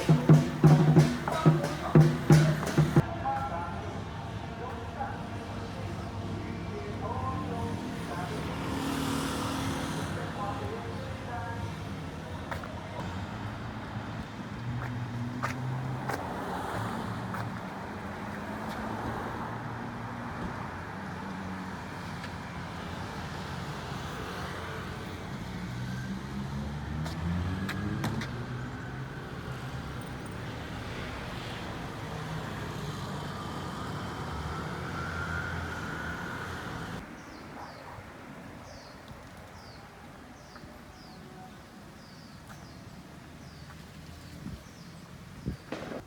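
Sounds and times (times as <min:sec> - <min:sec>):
vehicle engines passing: 0:00.0 - 0:37.4
engine rising in pitch: 0:33.0 - 0:37.0.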